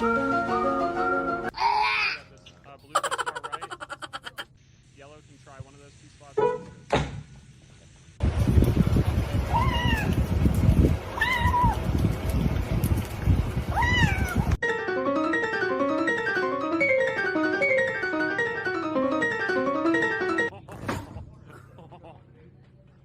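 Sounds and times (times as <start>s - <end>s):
bouncy keyboard music: 0.0s - 1.5s, 14.6s - 20.5s
rumbling background noise: 7.8s - 14.6s.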